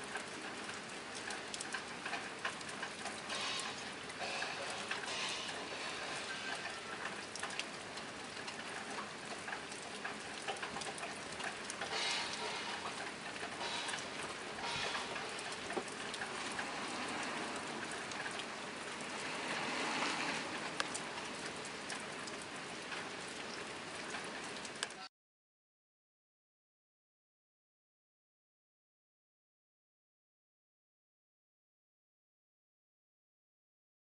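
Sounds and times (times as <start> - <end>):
rain on a tin roof: 0.0 - 25.1.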